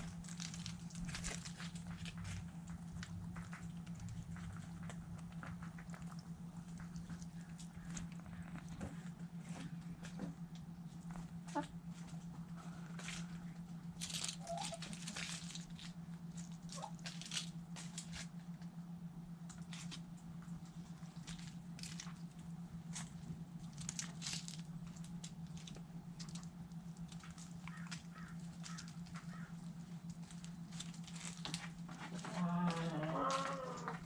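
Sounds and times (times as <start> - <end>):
chickens pecking food: 0.0 - 18.8, 19.4 - 34.0
steady low hum: 0.0 - 34.0
faint chicken clucks: 14.2 - 15.2, 27.6 - 29.8.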